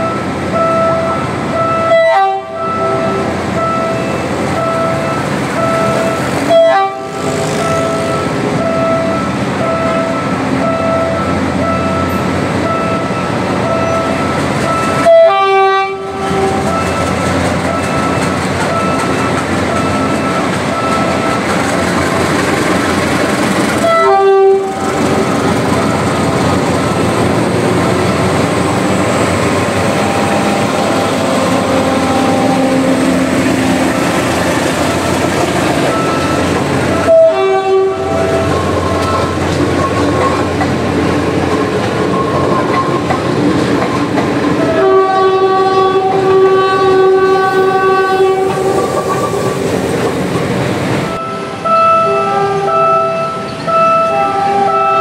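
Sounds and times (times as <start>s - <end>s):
train horn blasts: 0.0s - 18.2s, 23.7s - 26.1s, 29.8s - 39.4s, 44.6s - 48.8s, 51.2s - 55.0s
train wheels clattering over rail joints: 16.2s - 31.7s, 33.2s - 37.2s, 38.2s - 44.8s.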